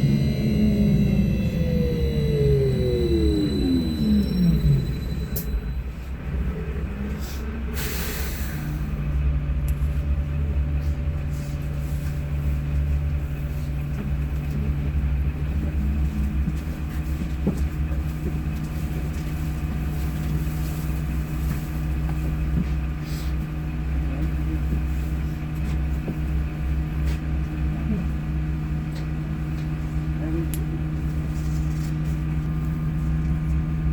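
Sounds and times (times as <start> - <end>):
electrical hum: 0.0 - 5.8
low rumble: 0.0 - 7.8, 8.5 - 21.4.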